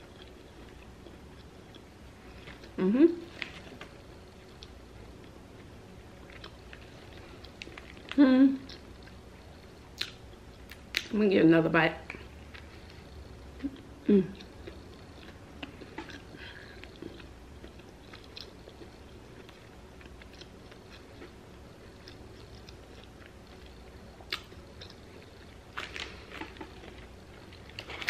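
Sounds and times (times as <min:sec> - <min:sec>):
wet chewing with clicks: 0:09.9 - 0:11.1, 0:22.0 - 0:28.0.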